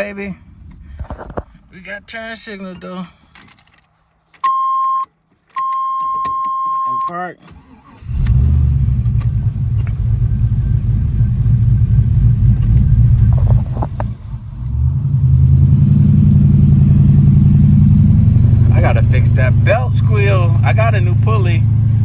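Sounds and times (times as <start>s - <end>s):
car engine idling rumble: 8.1s - 22.0s.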